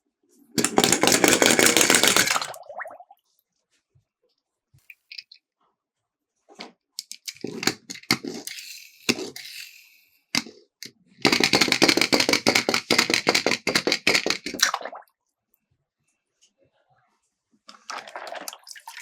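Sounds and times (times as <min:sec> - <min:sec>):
toy cars rattling down a slope: 0:00.6 - 0:02.5.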